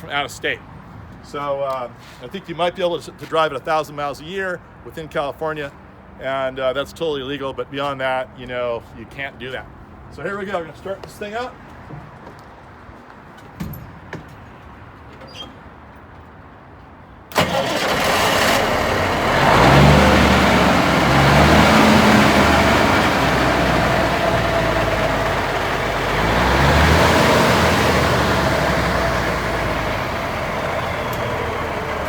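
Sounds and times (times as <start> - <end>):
diesel engine starting and revving: 17.3 - 32.0.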